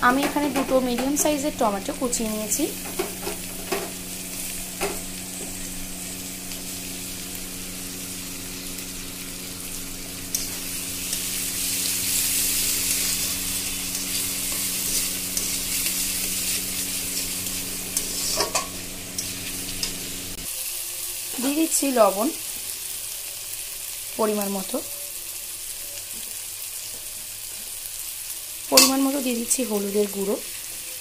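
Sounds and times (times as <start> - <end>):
vegetables sizzling in oil: 0.0 - 31.0
metal spatula stirring in pan: 10.3 - 20.0, 28.8 - 29.0.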